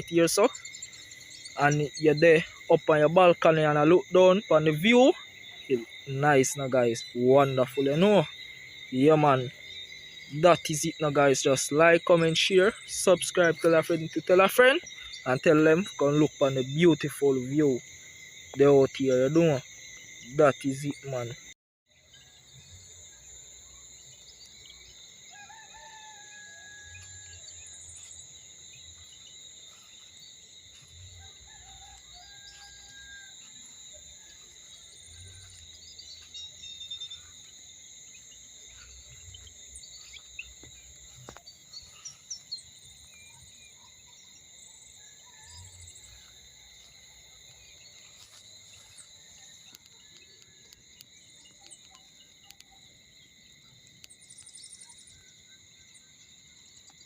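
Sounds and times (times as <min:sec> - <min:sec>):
birds calling: 0:00.0 - 0:22.4
insect chorus: 0:00.0 - 0:57.0
rooster crowing: 0:25.2 - 0:27.6, 0:30.7 - 0:35.6.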